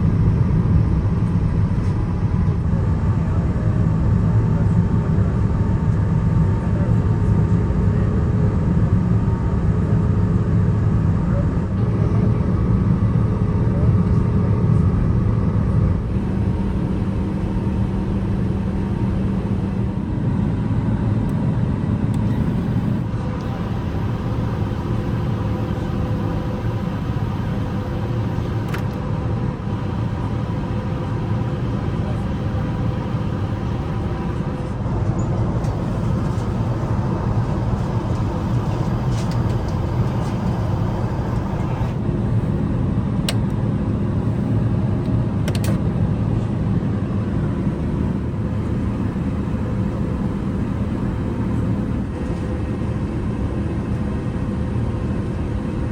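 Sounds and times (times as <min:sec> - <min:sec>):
jet engine cabin rumble: 0:11.7 - 0:55.9
steady engine tones: 0:15.9 - 0:55.9.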